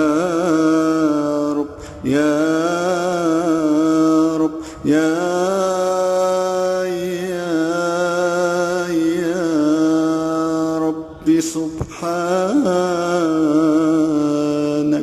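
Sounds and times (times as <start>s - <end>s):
low drone: 0.0s - 15.0s.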